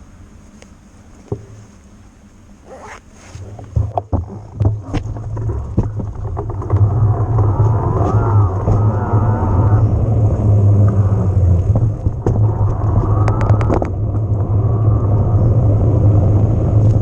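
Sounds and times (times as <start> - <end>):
electric mountain bike riding rumble: 0.0 - 17.0
knocks and rattles over rough ground: 1.1 - 1.9, 2.8 - 14.5.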